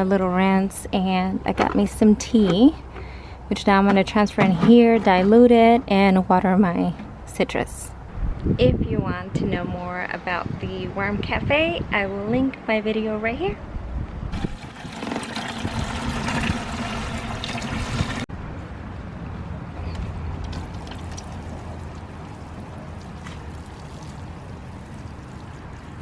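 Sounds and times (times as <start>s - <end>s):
liquid pouring into container: 14.3s - 18.3s.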